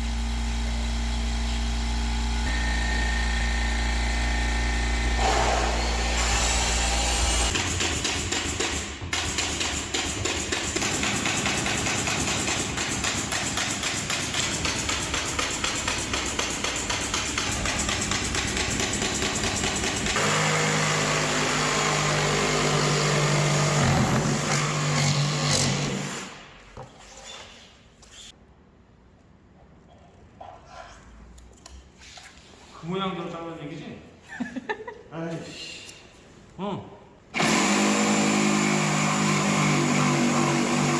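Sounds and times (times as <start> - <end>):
motor hum: 0.0 - 7.5
power tool rattling: 0.1 - 26.2.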